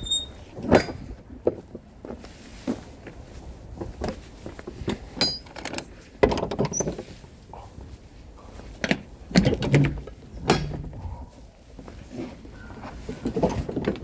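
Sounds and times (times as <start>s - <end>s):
short high squeaks: 0.0s - 1.2s.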